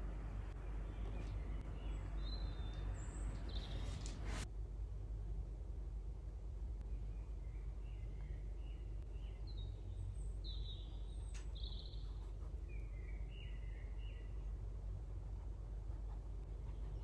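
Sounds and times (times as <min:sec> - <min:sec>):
birds chirping: 0:00.0 - 0:04.4, 0:06.8 - 0:14.6, 0:16.1 - 0:17.0
low background rumble: 0:00.0 - 0:17.0.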